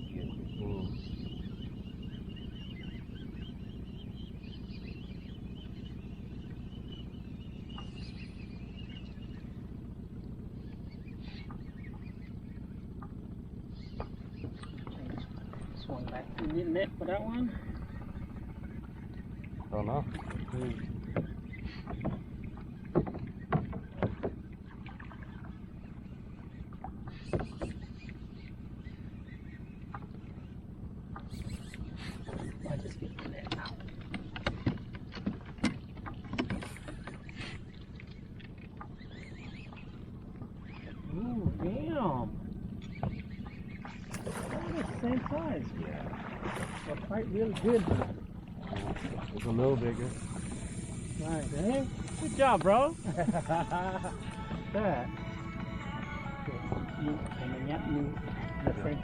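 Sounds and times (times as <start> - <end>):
boat motor running: 0.0 - 59.0
sharp knocks and clunks: 22.9 - 24.4
faint wavering high tone: 53.5 - 59.0.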